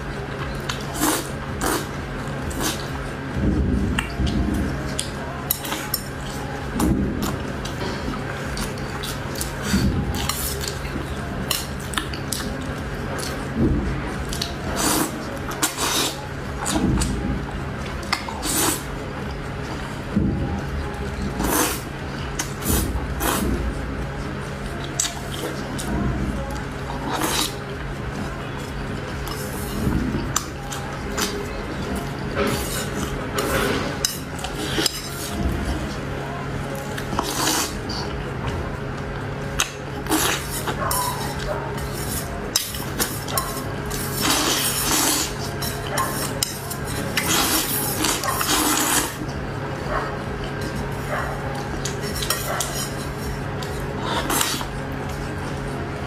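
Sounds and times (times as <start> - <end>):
low hum: 0.0 - 56.0
chewing or slurping: 0.5 - 3.0, 14.2 - 17.1, 18.0 - 18.9, 21.2 - 23.6, 26.9 - 27.7, 29.2 - 35.9, 36.9 - 38.2, 39.6 - 49.4, 50.4 - 55.2
utensils clinking on a dish: 39.6 - 49.2, 49.9 - 54.7.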